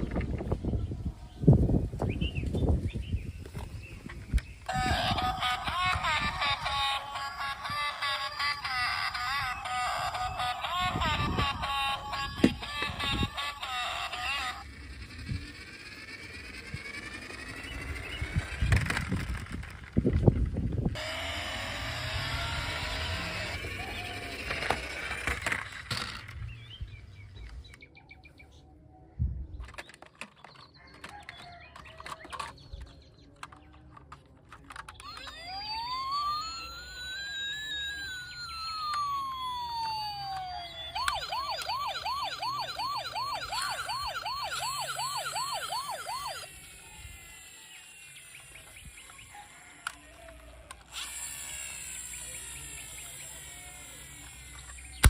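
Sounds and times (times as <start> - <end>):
electronic siren wailing and yelping: 4.6 - 19.7, 21.0 - 25.6, 35.0 - 54.9.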